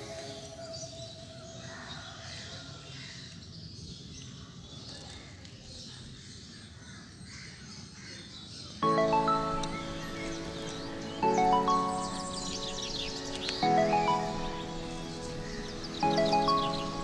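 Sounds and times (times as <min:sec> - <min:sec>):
birds chirping: 0:08.6 - 0:17.0.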